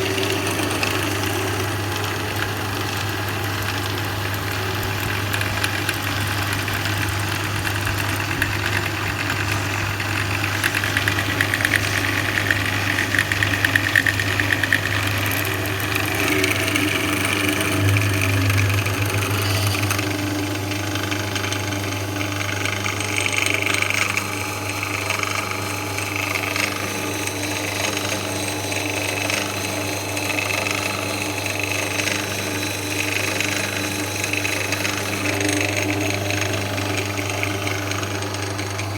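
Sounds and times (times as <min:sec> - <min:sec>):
drill press motor hum: 0:00.0 - 0:38.9
high whine: 0:14.1 - 0:23.0.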